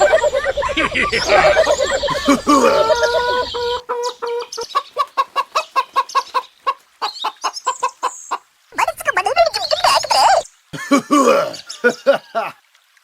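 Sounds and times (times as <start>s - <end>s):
chicken clucking: 0.0s - 8.2s.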